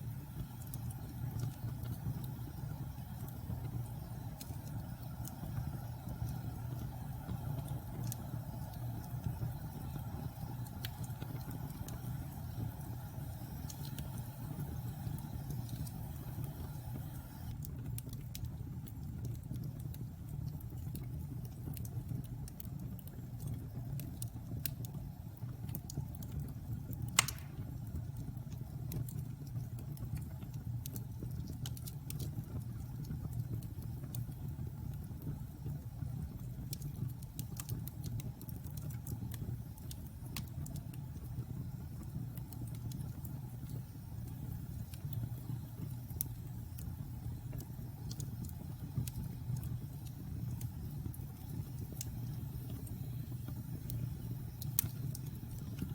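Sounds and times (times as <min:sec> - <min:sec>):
fire rumbling with crackles: 0:00.0 - 0:55.9
loud pop of burning log: 0:27.2 - 0:27.8.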